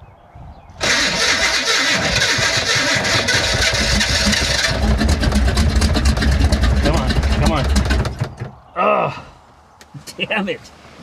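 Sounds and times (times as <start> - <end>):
car engine cranking and starting: 0.8 - 8.6.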